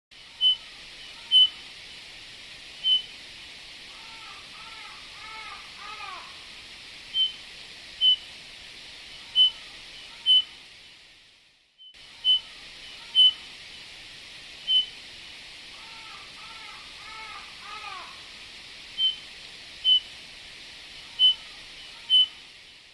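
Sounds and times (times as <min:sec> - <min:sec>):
steady hiss: 0:00.1 - 0:22.9
bird piping whistles: 0:00.4 - 0:00.7, 0:01.3 - 0:01.6, 0:02.8 - 0:03.1, 0:07.1 - 0:07.4, 0:08.0 - 0:08.2, 0:09.3 - 0:09.6, 0:10.2 - 0:10.5, 0:12.2 - 0:12.5, 0:13.1 - 0:13.4, 0:14.7 - 0:15.0, 0:19.0 - 0:20.1, 0:21.2 - 0:22.4.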